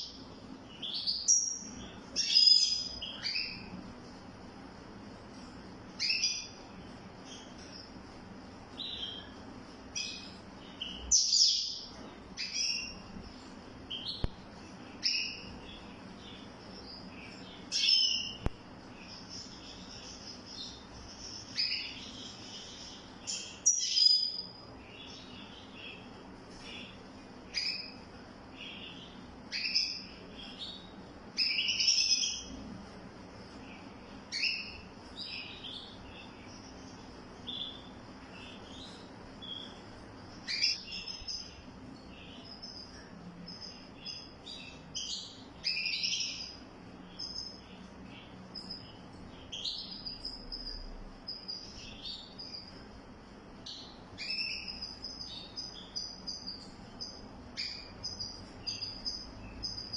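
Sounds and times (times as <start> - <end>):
songbird chirping: 0.0 - 59.9.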